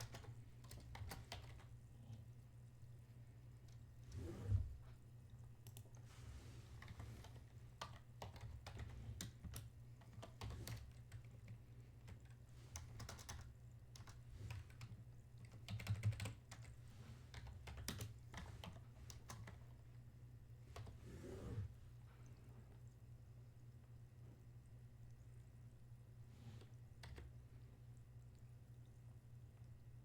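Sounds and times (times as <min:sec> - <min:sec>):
keyboard typing clicks: 0:00.0 - 0:01.7, 0:06.8 - 0:16.7, 0:17.3 - 0:19.6.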